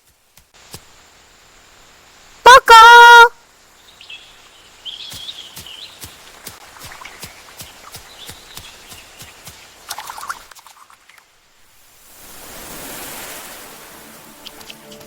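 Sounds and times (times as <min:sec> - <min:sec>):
high bird chirp: 0:03.9 - 0:06.2.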